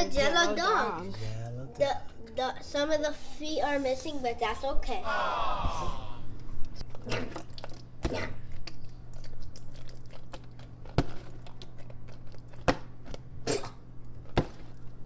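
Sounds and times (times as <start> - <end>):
person chewing: 6.7 - 15.0.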